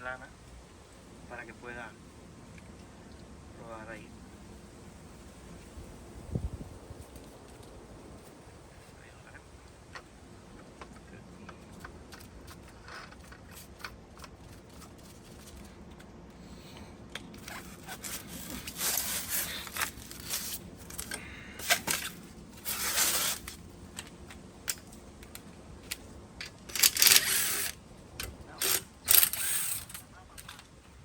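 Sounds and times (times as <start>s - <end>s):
scraping and rustling: 6.9s - 31.0s.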